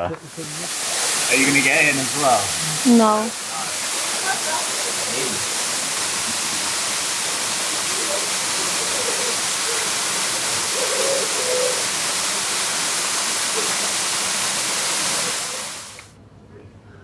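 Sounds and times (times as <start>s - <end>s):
faint voices: 0.0s - 6.6s
waterfall rushing: 0.1s - 16.1s.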